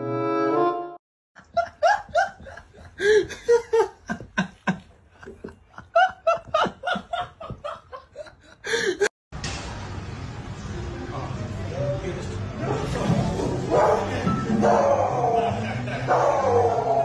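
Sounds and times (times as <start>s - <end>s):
high-pitched laughter: 15.1s - 17.0s.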